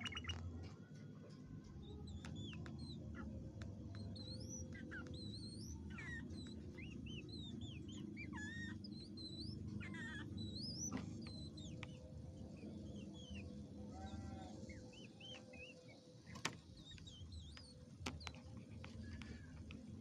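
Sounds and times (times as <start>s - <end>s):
bird whistled chirps: 0.0s - 0.4s, 3.9s - 16.0s.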